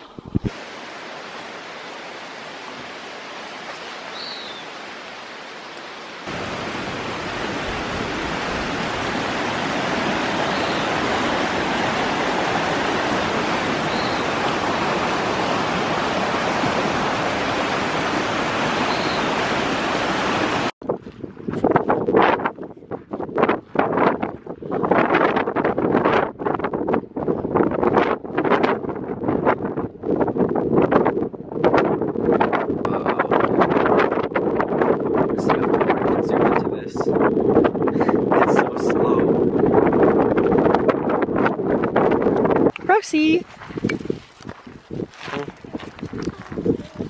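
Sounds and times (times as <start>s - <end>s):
water rushing: 0.0s - 20.8s
faint high chirps: 18.9s - 19.2s.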